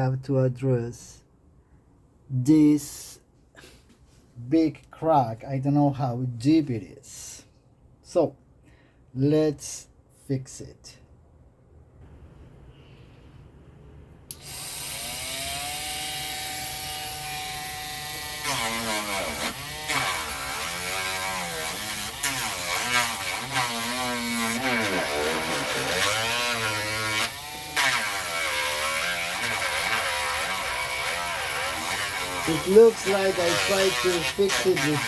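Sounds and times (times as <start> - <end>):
rotary tool grinding: 14.4 - 35.0.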